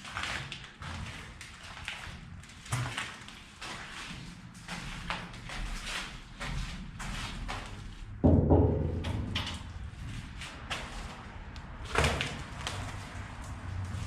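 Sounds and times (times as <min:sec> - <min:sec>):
low rumble: 0:08.1 - 0:11.8
sharp knock: 0:08.2 - 0:09.6
heavy thump: 0:08.2 - 0:09.8.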